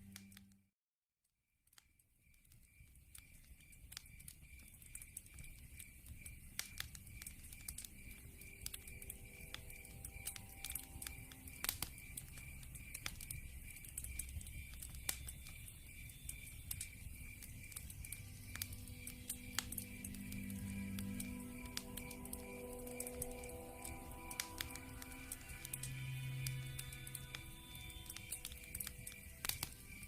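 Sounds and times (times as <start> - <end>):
wood fire crackling: 2.2 - 30.0
high chirp pulsing: 8.2 - 30.0.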